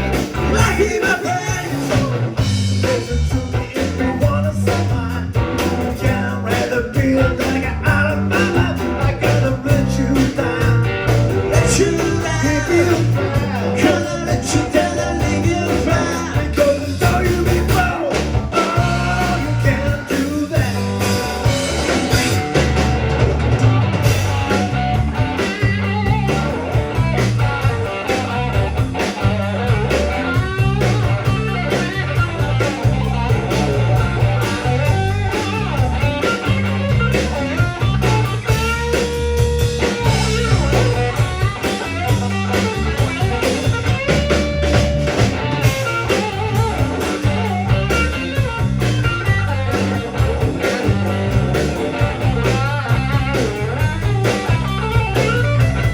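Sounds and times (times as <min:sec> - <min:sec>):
bass guitar: 0:00.0 - 0:55.9
drum kit: 0:00.0 - 0:55.9
electric guitar with bent notes: 0:00.0 - 0:55.9.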